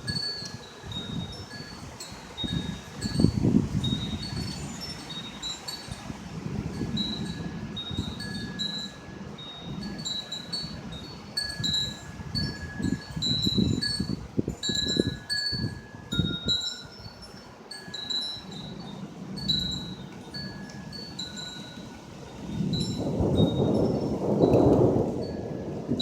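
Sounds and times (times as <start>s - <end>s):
wind chimes ringing: 0.0s - 26.0s.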